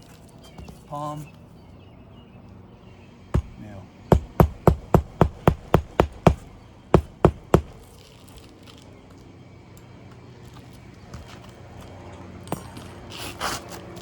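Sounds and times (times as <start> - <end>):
hammer striking roofing nail: 3.4 - 7.9.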